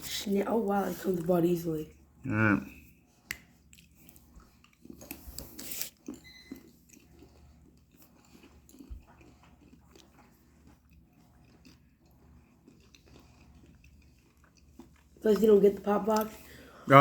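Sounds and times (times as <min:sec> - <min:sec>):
chewing popping candy chocolate: 0:03.3 - 0:16.4.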